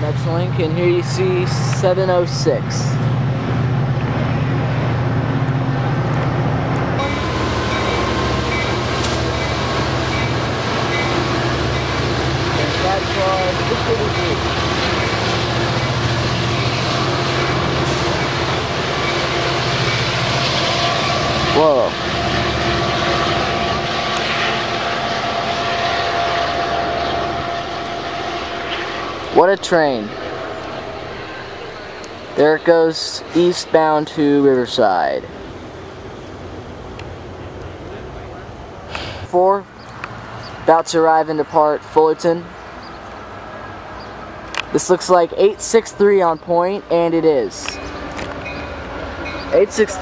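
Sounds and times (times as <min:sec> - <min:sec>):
diesel locomotive engine drone: 0:00.0 - 0:50.0
train cars rumbling: 0:00.0 - 0:50.0
thin high steady tones: 0:07.0 - 0:36.5.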